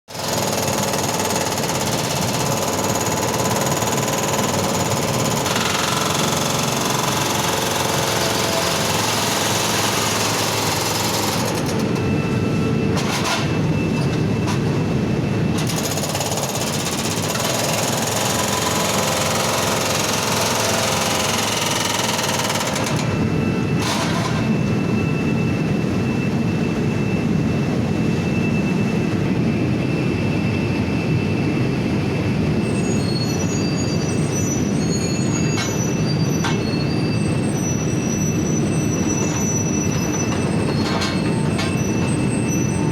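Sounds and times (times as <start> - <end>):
hydraulic breaker hammering brick: 0.1 - 12.0, 13.0 - 13.6, 15.6 - 23.2, 23.8 - 24.6.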